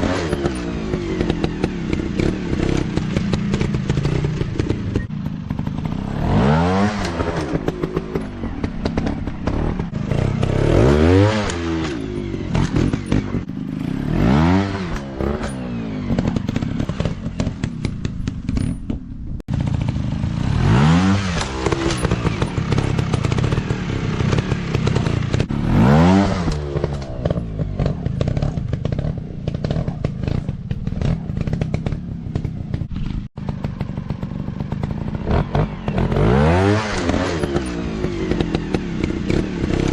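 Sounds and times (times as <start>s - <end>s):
dirt bike engines revving: 0.0s - 18.7s, 19.5s - 39.9s
sharp clicks and knocks: 21.3s - 25.5s, 26.4s - 36.2s.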